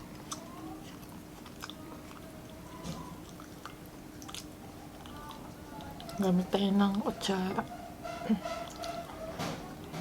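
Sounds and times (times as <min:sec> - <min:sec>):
person chewing food: 0:00.0 - 0:06.2.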